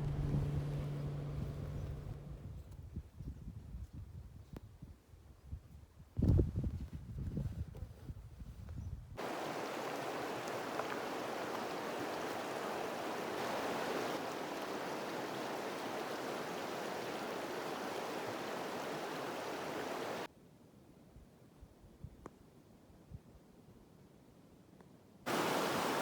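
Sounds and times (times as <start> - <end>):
low rumble: 0.0 - 2.7
stream running water: 9.2 - 20.3, 25.3 - 26.0.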